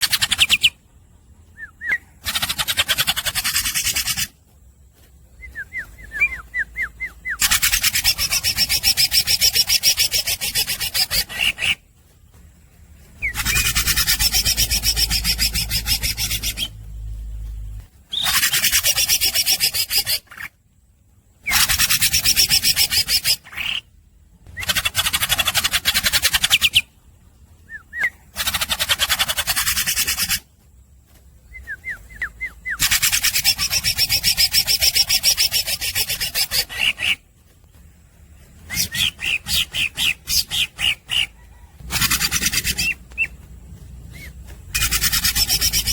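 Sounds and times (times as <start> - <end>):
bird singing buzzing rattles: 0.0 - 20.6, 21.4 - 45.9
rising whistled bird notes: 1.5 - 2.2, 5.3 - 11.8, 27.6 - 28.3, 31.4 - 37.1, 38.6 - 43.4, 44.1 - 45.9.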